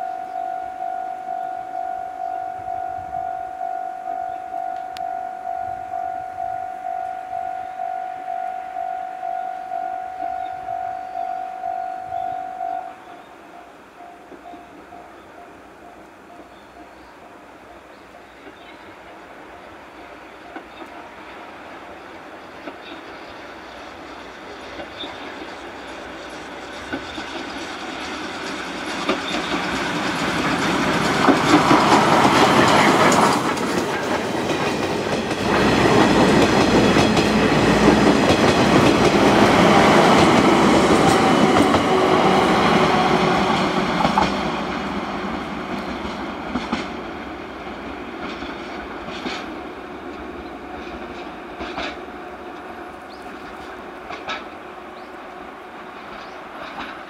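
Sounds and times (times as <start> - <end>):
steam train passing: 0.0 - 57.0
wheels clacking over rail joints: 19.5 - 57.0.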